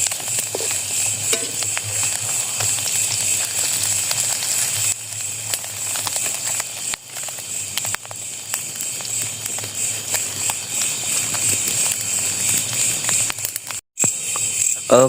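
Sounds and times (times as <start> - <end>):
food sizzling in a pan: 0.0 - 15.0
sharp crackles: 0.0 - 15.0.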